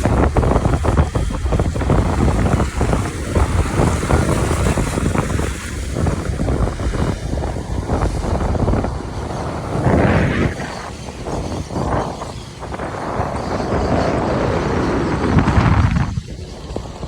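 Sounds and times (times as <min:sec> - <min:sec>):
traffic on wet road: 0:00.0 - 0:12.6
wind buffeting microphone: 0:00.0 - 0:17.0.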